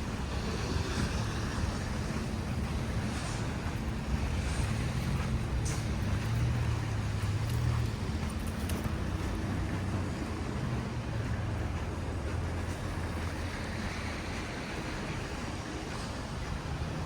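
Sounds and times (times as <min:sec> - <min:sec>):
tyres hissing through wet snow: 0:00.0 - 0:08.2, 0:12.5 - 0:17.0
vehicle engine hum: 0:00.0 - 0:17.0.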